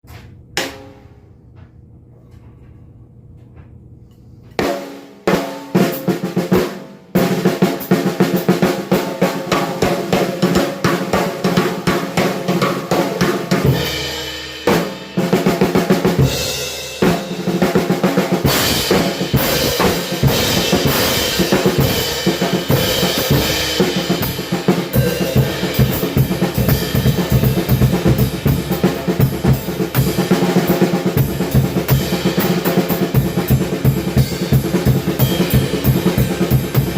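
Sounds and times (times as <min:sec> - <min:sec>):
drum kit playing fast: 0:04.6 - 0:36.9.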